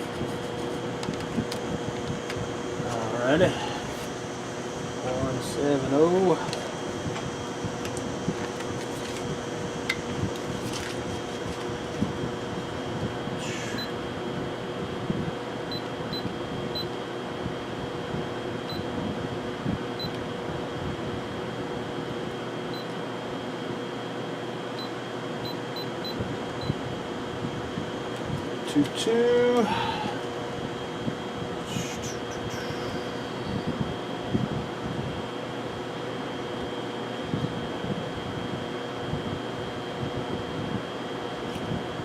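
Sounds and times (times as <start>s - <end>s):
milling machine humming: 0.0s - 42.0s.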